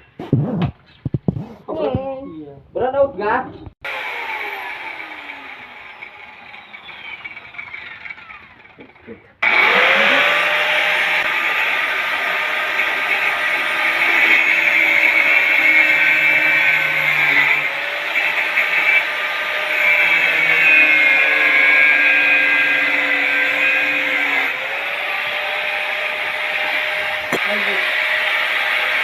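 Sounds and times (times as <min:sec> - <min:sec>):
power tool motor whining: 0:03.8 - 0:29.0.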